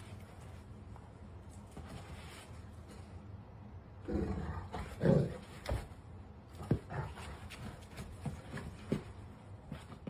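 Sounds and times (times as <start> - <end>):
dog growling: 4.0 - 5.6.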